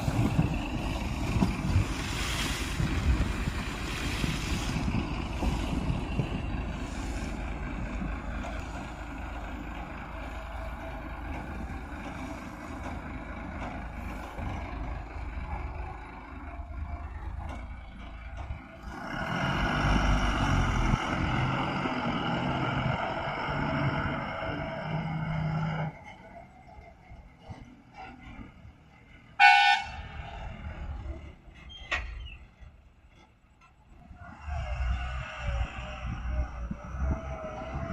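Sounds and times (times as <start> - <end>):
wind noise on microphone: 0.0 - 9.0, 33.9 - 37.9
backhoe diesel engine running: 0.0 - 37.9.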